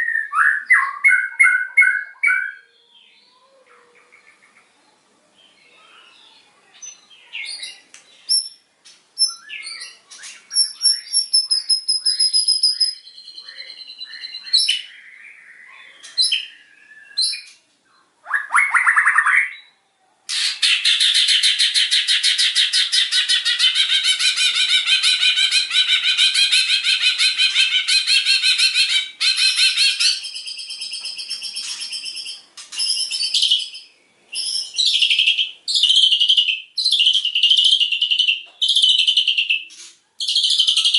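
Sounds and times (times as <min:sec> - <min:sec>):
bird singing varied song: 0:00.0 - 0:40.9
loud rapid bird trill: 0:09.2 - 0:17.5, 0:20.3 - 0:40.9.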